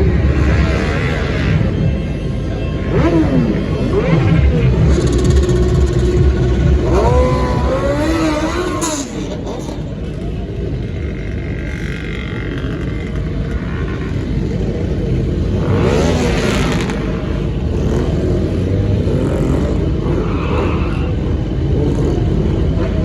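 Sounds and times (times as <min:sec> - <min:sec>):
car engine running: 0:00.0 - 0:23.0
motorcycle engine running: 0:00.0 - 0:23.0.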